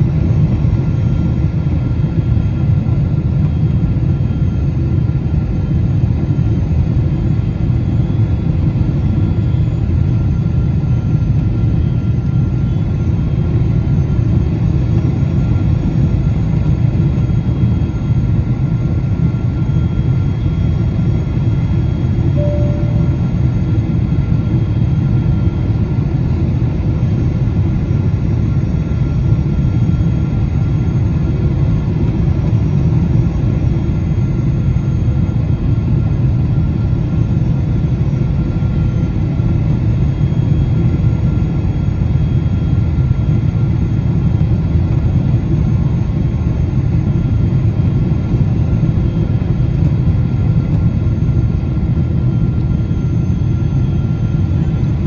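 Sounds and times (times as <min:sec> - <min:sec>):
aircraft cabin engine rumble: 0:00.0 - 0:55.0
faint whining tones: 0:09.2 - 0:25.7.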